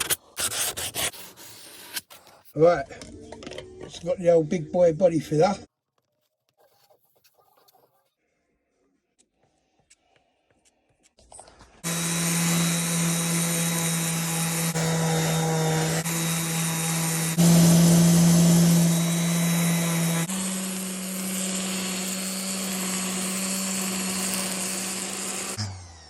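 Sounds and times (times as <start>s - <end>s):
electric sander running: 11.8s - 26.0s.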